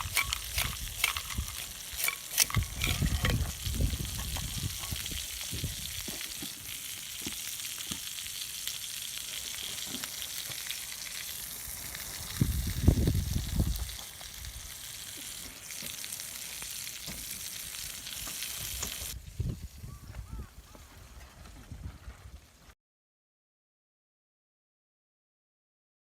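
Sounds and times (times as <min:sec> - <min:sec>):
food sizzling in a frying pan: 0:00.0 - 0:19.9.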